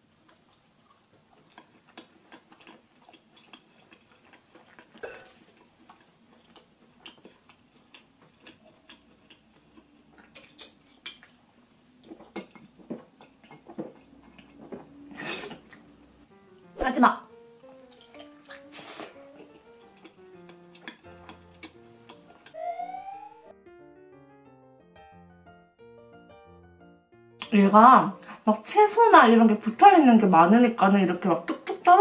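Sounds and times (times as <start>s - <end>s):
chewing fried chicken: 0.0s - 16.7s, 17.7s - 22.4s.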